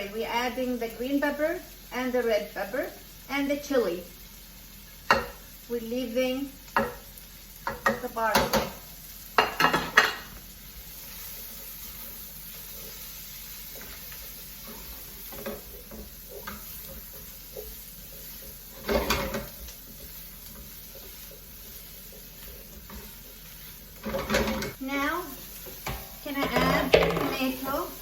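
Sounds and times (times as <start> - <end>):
vegetables sizzling in a pan: 0.0 - 28.0
stirring clatter: 13.7 - 24.8, 25.7 - 27.6.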